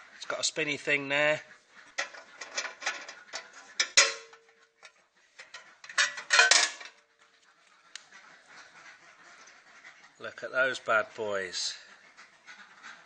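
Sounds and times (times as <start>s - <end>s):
metal clatter: 2.0s - 7.0s
metallic clicks and clanks: 2.0s - 7.0s.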